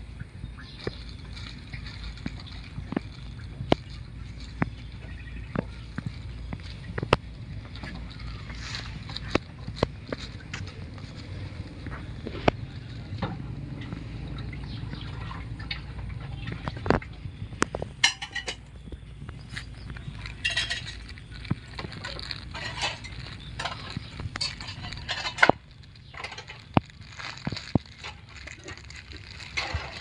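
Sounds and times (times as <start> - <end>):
low steady hum: 0.0 - 30.0
dishware clinking: 20.4 - 21.0.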